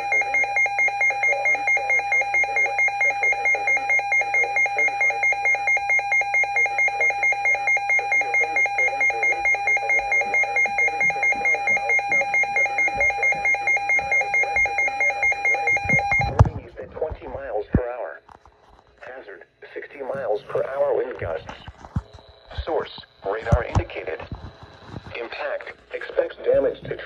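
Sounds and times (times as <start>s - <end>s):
electronic alarm beeping rapidly: 0.0s - 16.4s.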